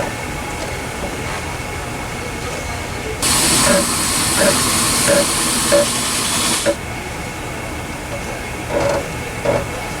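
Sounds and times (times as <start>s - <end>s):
air hissing: 3.2s - 6.8s.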